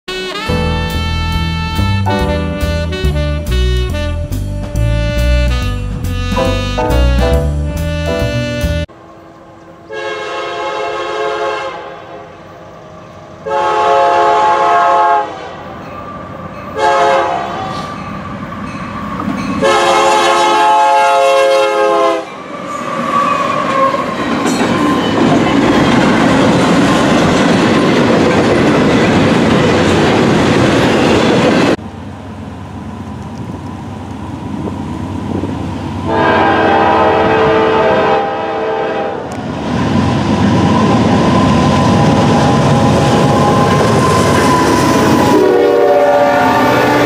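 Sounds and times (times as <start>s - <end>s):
train horn blasts: 0.1s - 16.0s, 16.7s - 18.1s, 19.6s - 22.4s, 36.0s - 39.4s, 41.9s - 47.0s
train rushing past: 0.5s - 47.0s.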